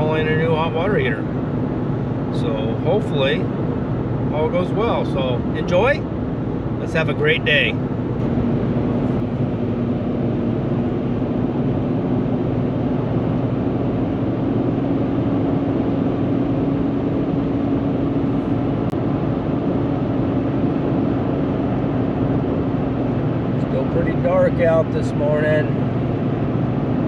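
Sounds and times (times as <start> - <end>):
car cabin road and engine noise: 0.0 - 27.0.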